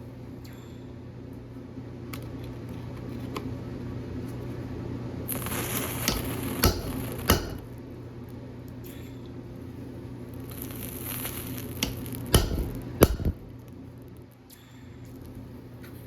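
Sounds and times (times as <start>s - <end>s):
steady low hum: 0.0s - 16.0s
hammer knocks on metal: 6.1s - 7.7s, 11.8s - 13.4s
hiss: 10.4s - 13.3s.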